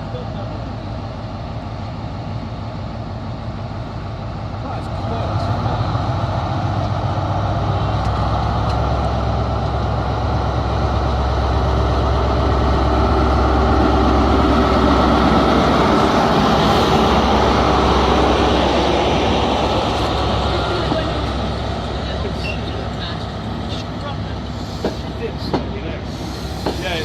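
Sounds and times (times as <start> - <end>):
diesel train engine humming: 0.0 - 27.0.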